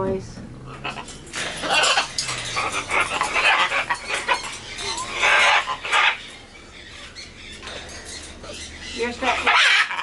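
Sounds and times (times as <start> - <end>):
large birds giving harsh calls: 0.6 - 10.0.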